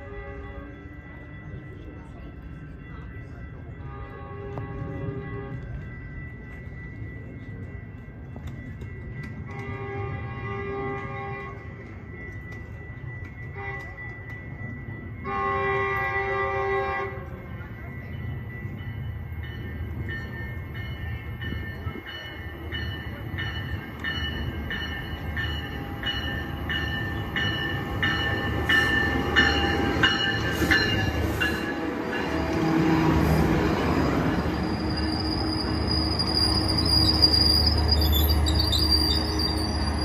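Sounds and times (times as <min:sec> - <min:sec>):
train rumbling past: 0:00.0 - 0:40.0
warning bell ringing: 0:17.2 - 0:40.0
high brake squeal: 0:34.5 - 0:40.0.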